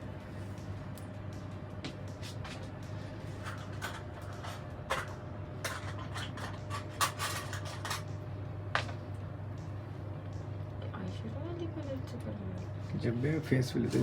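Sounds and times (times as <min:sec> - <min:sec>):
low hum: 0:00.0 - 0:13.0
rustling and scraping handling noise: 0:03.2 - 0:08.1.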